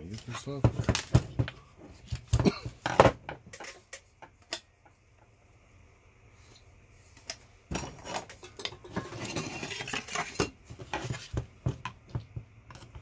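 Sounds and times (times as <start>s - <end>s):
metal tools clattering and scraping: 0.0s - 4.7s, 7.2s - 11.4s.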